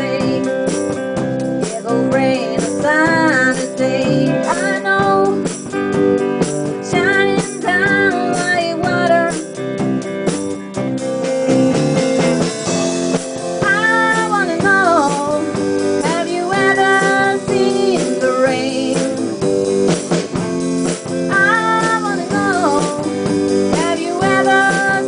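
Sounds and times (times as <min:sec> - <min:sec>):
person singing: 0:00.0 - 0:00.6, 0:01.6 - 0:05.5, 0:06.8 - 0:09.5, 0:13.6 - 0:19.4, 0:21.3 - 0:25.0
rock song: 0:00.0 - 0:25.0.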